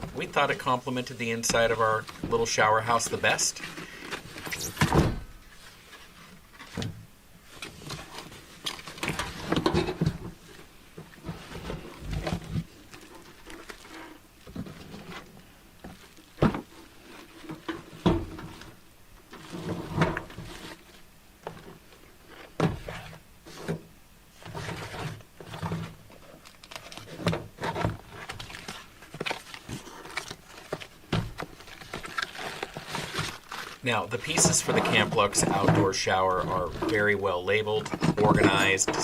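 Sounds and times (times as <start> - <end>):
sharp thunks: 4.4 - 5.4
package being unpacked: 28.2 - 34.2.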